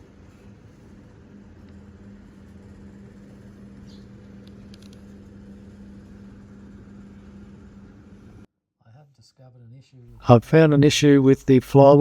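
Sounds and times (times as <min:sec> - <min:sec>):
low electrical hum: 0:00.0 - 0:08.5.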